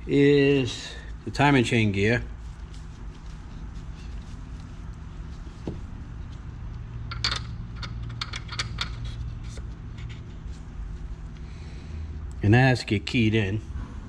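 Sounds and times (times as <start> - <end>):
steady low hum: 0.0 - 14.0
metal engine parts clinking: 7.0 - 9.6.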